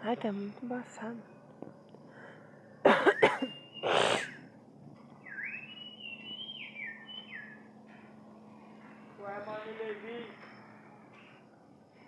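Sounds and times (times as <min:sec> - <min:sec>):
faint steady hum: 0:00.0 - 0:12.0
whistled notes: 0:05.2 - 0:07.6.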